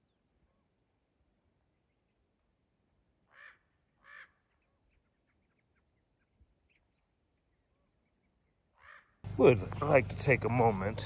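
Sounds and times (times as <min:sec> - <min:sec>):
faint bird chirps: 0:03.3 - 0:09.2.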